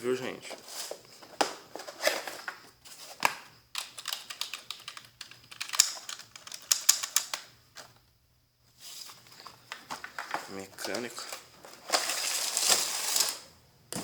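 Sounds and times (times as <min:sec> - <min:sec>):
computer keyboard clicking: 0:03.8 - 0:07.5.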